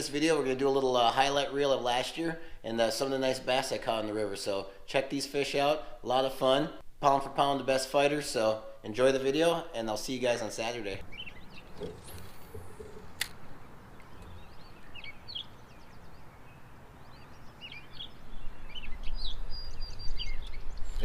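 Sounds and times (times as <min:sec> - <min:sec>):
small birds chirping: 0:11.0 - 0:21.0
sharp click: 0:12.9 - 0:13.4.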